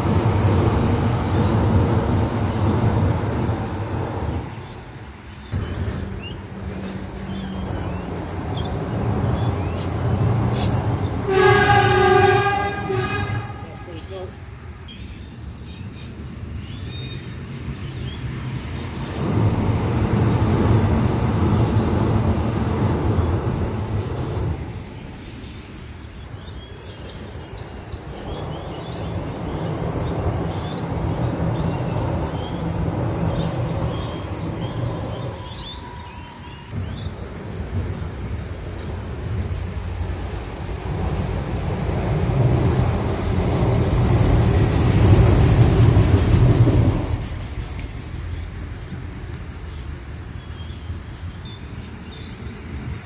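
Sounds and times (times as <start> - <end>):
train passing with low rumble: 0.0 - 53.0
birds chirping: 1.1 - 19.4, 21.6 - 53.0
train horn: 11.1 - 14.1.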